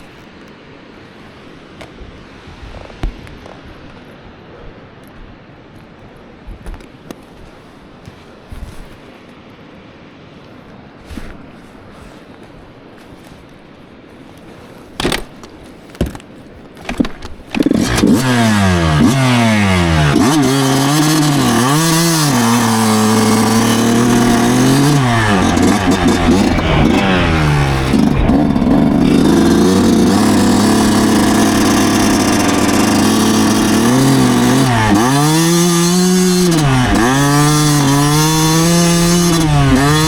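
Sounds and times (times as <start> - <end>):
kick-starter thumps: 15.0 - 16.2, 16.9 - 40.0
two-stroke motorcycle engine revving: 17.5 - 40.0.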